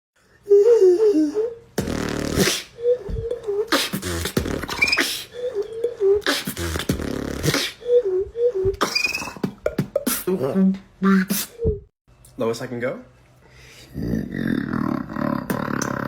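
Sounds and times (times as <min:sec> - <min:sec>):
person beatboxing: 0:01.8 - 0:07.8, 0:08.5 - 0:10.4, 0:15.3 - 0:16.0.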